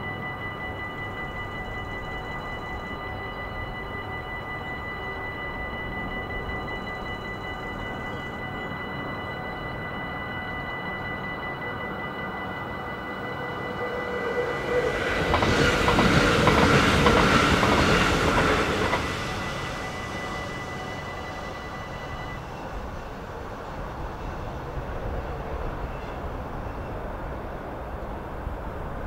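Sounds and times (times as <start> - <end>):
level-crossing bells ringing: 0.0 - 25.2
train wheels on rails clicking: 13.8 - 21.1.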